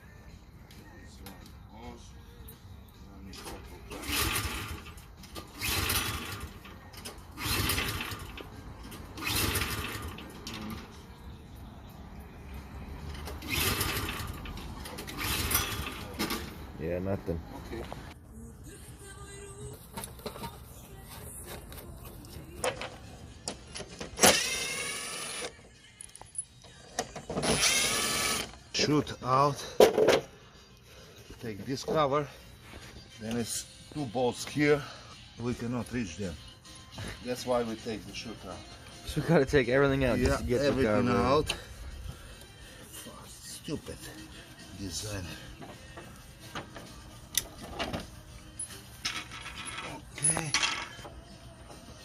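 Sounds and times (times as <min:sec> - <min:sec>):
snowblower engine cranking: 0:04.0 - 0:06.6, 0:07.4 - 0:08.5, 0:09.2 - 0:10.6, 0:13.4 - 0:16.1
electric drill spinning: 0:24.3 - 0:25.5, 0:27.4 - 0:28.5.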